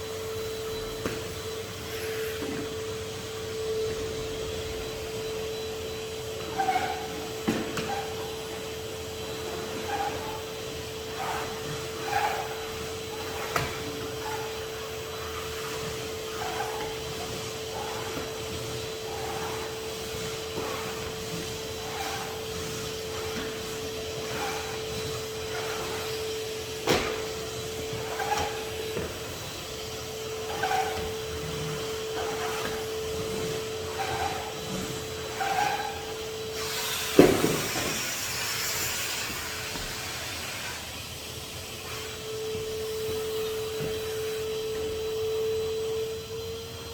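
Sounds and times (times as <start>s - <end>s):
vacuum cleaner motor hum: 0.0s - 46.9s
cleaning tool rubbing knocks: 9.2s - 40.2s.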